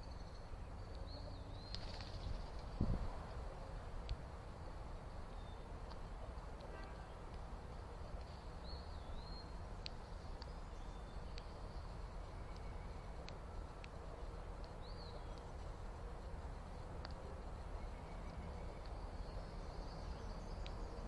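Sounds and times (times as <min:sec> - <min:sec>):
bird chirps: 0:00.0 - 0:02.8, 0:04.6 - 0:06.0, 0:07.8 - 0:21.0
wild birds calling: 0:07.9 - 0:21.0.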